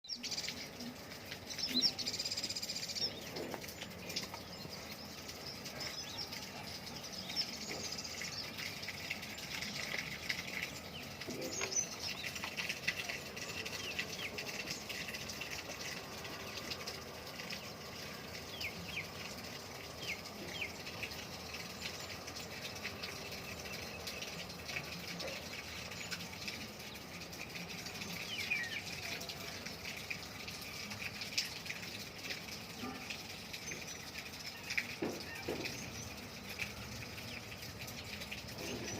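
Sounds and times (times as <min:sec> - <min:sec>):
birds chirping: 0:00.0 - 0:27.1, 0:27.8 - 0:30.9, 0:32.8 - 0:38.9.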